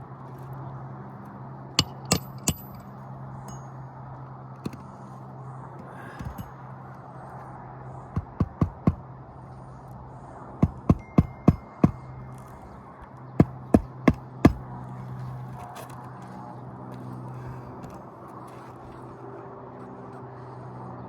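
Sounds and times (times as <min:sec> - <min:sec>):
hammer striking nails: 0:01.8 - 0:02.8, 0:08.1 - 0:09.0, 0:10.6 - 0:12.1, 0:13.4 - 0:14.6.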